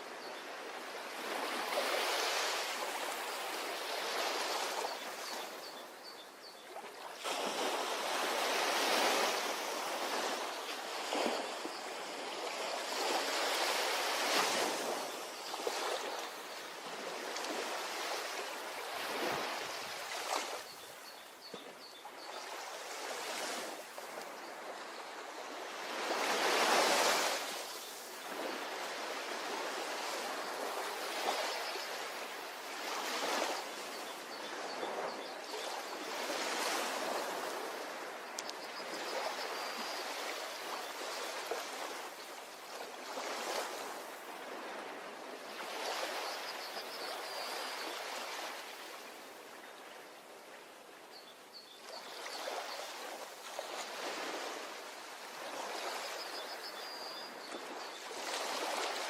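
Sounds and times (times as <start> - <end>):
ocean waves washing onto shore: 0.0 - 51.0.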